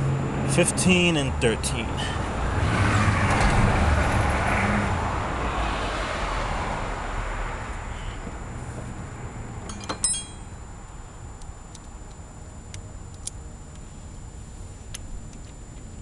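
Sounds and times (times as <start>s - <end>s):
metal tools clinking: 9.7s - 10.5s.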